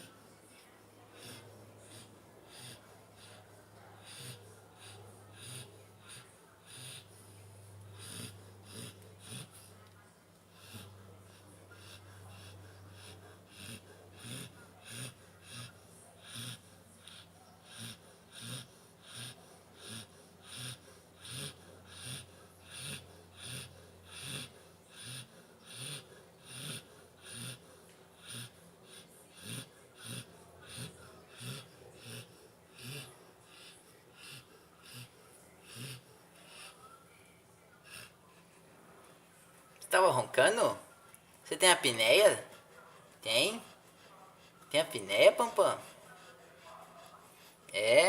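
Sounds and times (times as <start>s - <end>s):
dog snoring: 1.2s - 7.3s, 8.0s - 9.7s, 10.6s - 36.8s.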